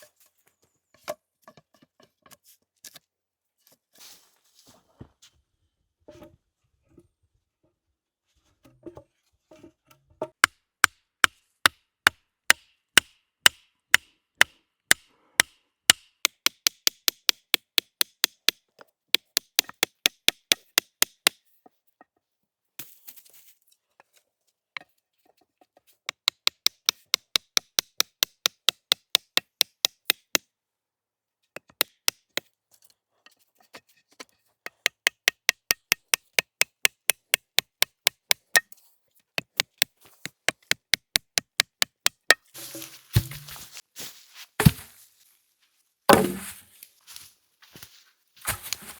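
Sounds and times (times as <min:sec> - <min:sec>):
tomahawk chopping wood: 0:12.5 - 0:18.6, 0:19.2 - 0:21.4, 0:34.7 - 0:38.7, 0:39.4 - 0:43.7, 0:44.6 - 0:44.9, 0:46.1 - 0:46.7
short rustle: 0:42.6 - 0:45.5, 0:46.4 - 0:48.9.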